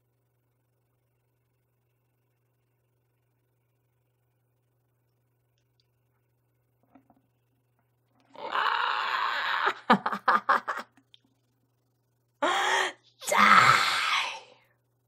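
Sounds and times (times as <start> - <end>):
woman moaning and crying out: 8.3 - 10.2, 12.4 - 14.5
woman laughing: 9.6 - 11.0.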